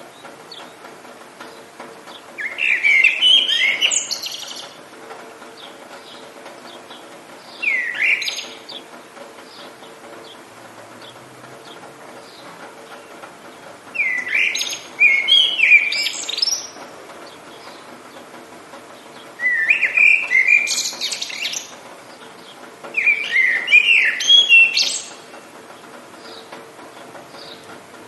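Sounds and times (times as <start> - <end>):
steady background hiss: 0.0 - 28.0
songbird whistling: 2.4 - 4.7, 7.5 - 8.7, 13.9 - 16.8, 19.4 - 21.7, 23.0 - 25.2.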